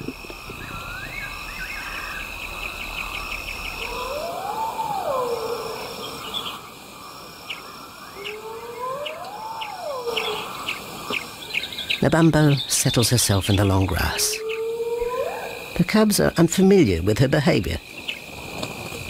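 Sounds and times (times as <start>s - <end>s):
insects trilling and chirping: 0.0s - 19.0s
rising and falling call: 3.6s - 6.4s, 8.2s - 10.7s.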